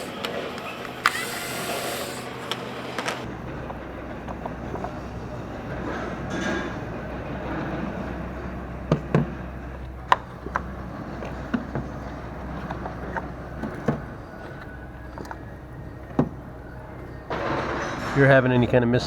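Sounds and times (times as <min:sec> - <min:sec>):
tool clicks and knocks: 0:00.0 - 0:03.3.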